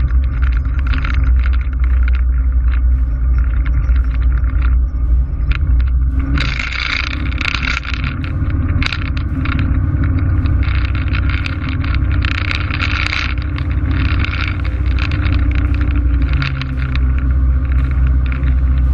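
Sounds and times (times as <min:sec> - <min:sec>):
airplane engine and airflow rumble: 0:00.0 - 0:18.9
rattles and crackles: 0:00.0 - 0:18.9.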